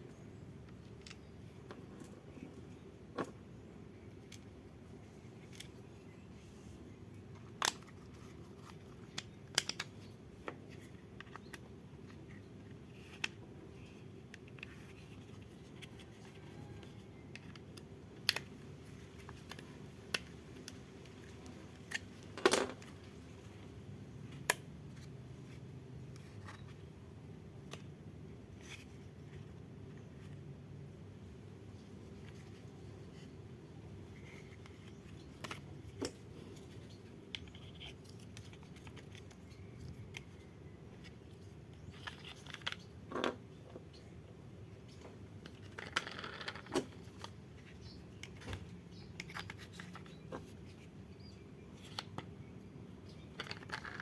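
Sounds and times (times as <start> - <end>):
faint steady hum: 0.0 - 54.0
small toy parts clicking: 7.4 - 10.0
toy parts rattle: 53.3 - 54.0.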